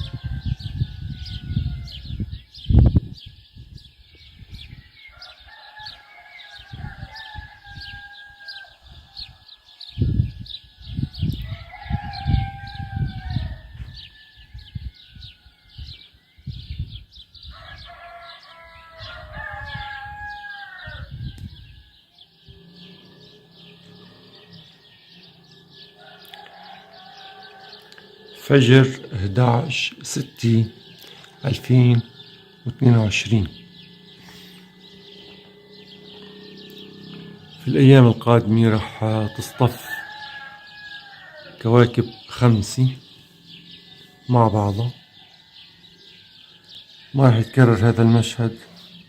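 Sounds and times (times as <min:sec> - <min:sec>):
roosters crowing: 0:00.0 - 0:03.5, 0:04.2 - 0:49.0
wind on microphone: 0:00.0 - 0:18.0, 0:18.9 - 0:22.9.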